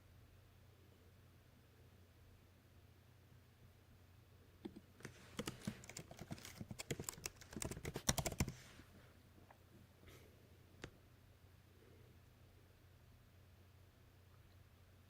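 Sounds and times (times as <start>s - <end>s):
typing on a keyboard: 4.6s - 8.6s.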